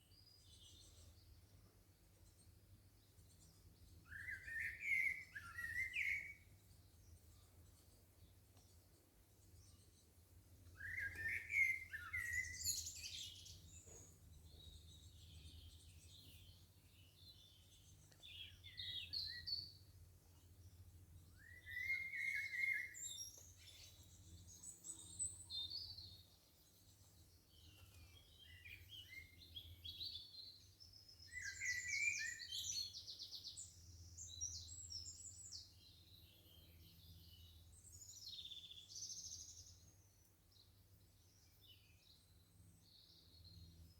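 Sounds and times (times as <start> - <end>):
songbirds chirping and trilling: 0.0 - 43.9.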